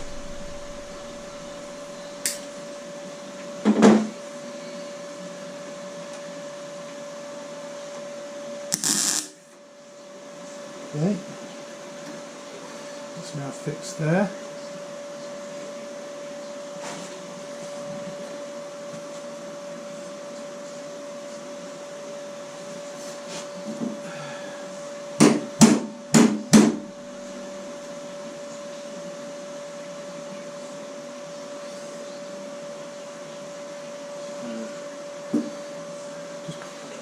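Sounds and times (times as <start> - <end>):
steady hum: 0.0 - 3.3.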